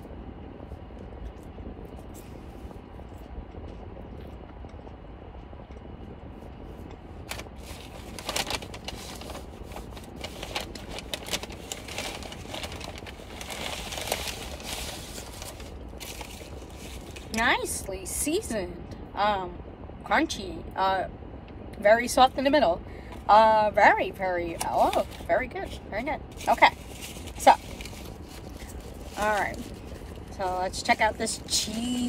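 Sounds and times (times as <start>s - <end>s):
steady low hum: 0.0s - 32.0s
chewing crunchy fries: 0.6s - 17.5s, 26.2s - 32.0s.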